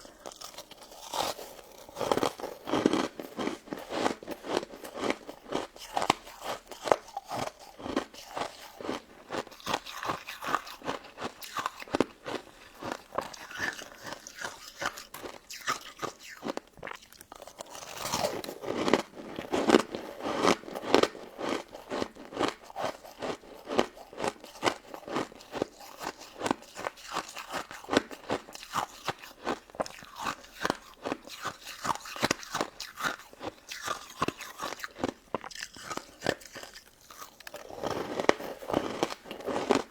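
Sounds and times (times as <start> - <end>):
crunching and chewing: 0.0 - 39.9.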